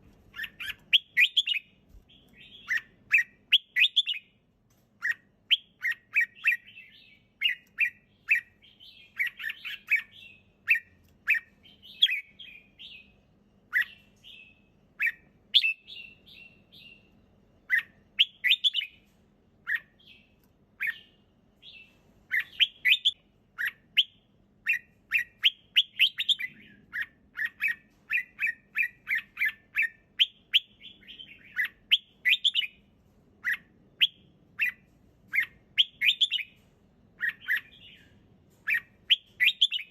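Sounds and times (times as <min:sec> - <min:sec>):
bird whistled song: 0:00.3 - 0:04.4, 0:05.0 - 0:32.8, 0:33.4 - 0:36.6, 0:37.2 - 0:39.9.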